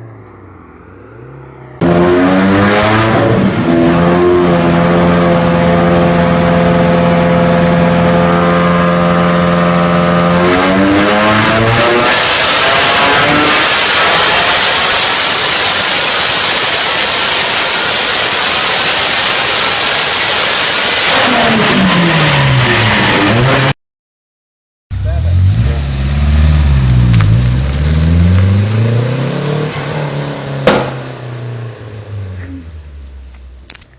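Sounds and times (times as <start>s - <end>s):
car engine running hard: 0.0s - 23.7s, 24.9s - 33.8s
engine revving: 0.0s - 23.8s, 24.9s - 32.9s
rush of noise: 10.6s - 23.7s
sharp crack: 30.6s - 31.2s.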